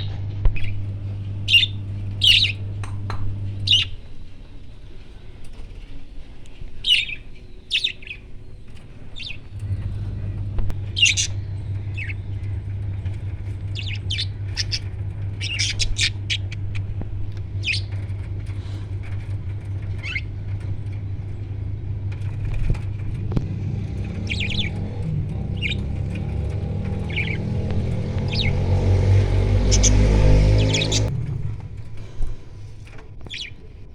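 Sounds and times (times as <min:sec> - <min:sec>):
parrots squawking and chirping: 0:00.0 - 0:02.7, 0:03.6 - 0:04.1, 0:06.8 - 0:08.3, 0:09.0 - 0:12.5, 0:13.6 - 0:16.9, 0:17.5 - 0:19.0, 0:19.8 - 0:20.4, 0:24.2 - 0:24.8, 0:25.5 - 0:26.3, 0:26.9 - 0:28.6, 0:29.6 - 0:31.1
steady low hum: 0:00.0 - 0:33.9.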